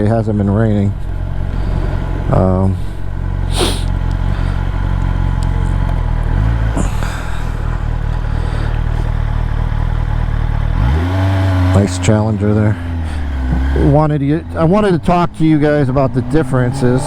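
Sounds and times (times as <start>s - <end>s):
wind noise: 0.0s - 5.7s
motorcycle engine running: 0.0s - 17.0s.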